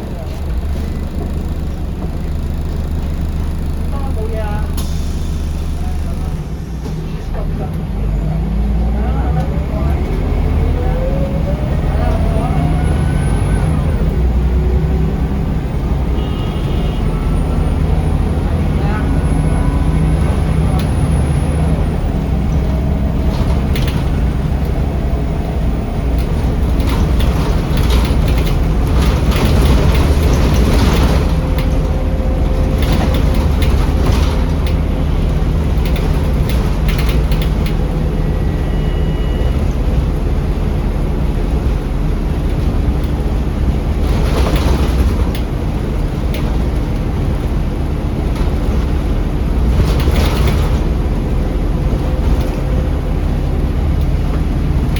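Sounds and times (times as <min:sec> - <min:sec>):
bus engine drone: 0:00.0 - 0:54.9
road noise: 0:00.0 - 0:54.9
body and fitting rattles: 0:22.1 - 0:38.0.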